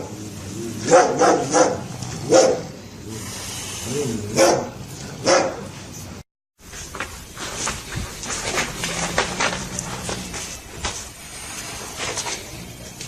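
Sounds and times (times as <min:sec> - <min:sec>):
dog barking: 0:00.8 - 0:02.8, 0:04.0 - 0:05.7.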